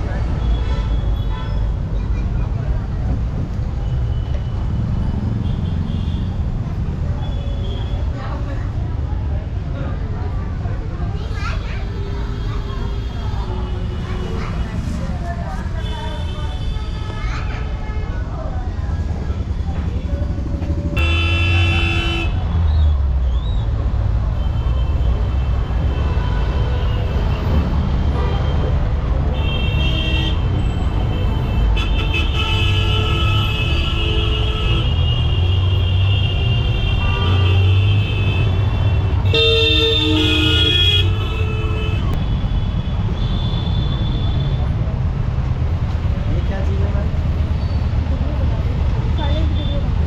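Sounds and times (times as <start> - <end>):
street traffic rumble: 0.0 - 50.0
vehicle engines running: 1.8 - 29.4
vehicle horn: 21.0 - 22.4, 31.2 - 42.2.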